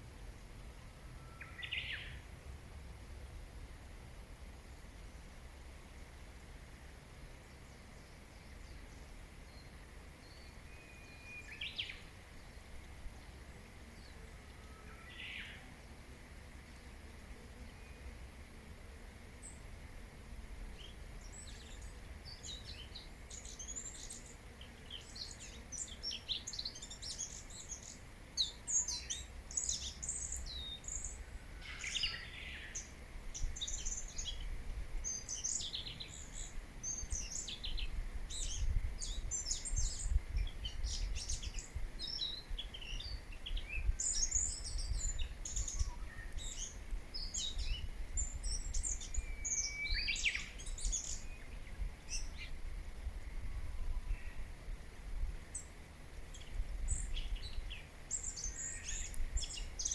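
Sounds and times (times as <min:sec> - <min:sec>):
songbirds chirping and twittering: 0:00.0 - 0:02.7, 0:03.6 - 0:59.9.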